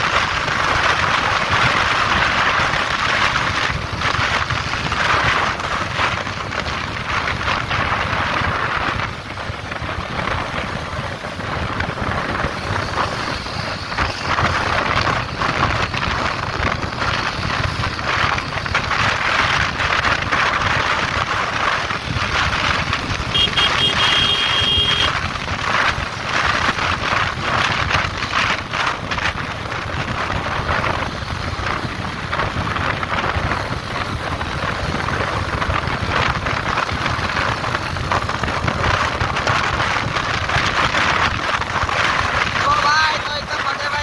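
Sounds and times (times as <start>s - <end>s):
wind rushing over microphone: 0.0s - 44.0s
motorcycle engine: 0.4s - 42.6s
short high beep: 23.4s - 25.1s.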